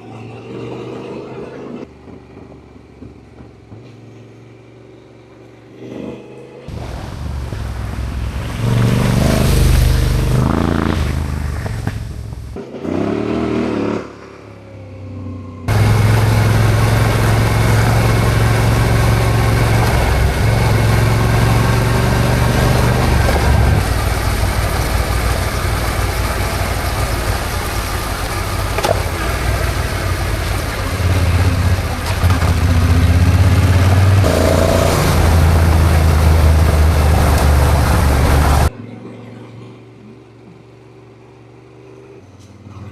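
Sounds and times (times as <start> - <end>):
motorcycle engine accelerating: 1.8 - 14.3, 15.6 - 38.7.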